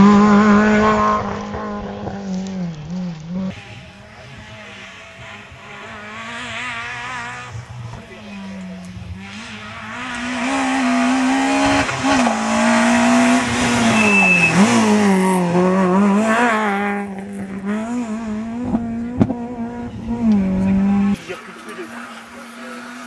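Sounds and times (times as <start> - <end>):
rally car engine revving: 0.0 - 23.0
tyre and road noise: 0.0 - 23.0.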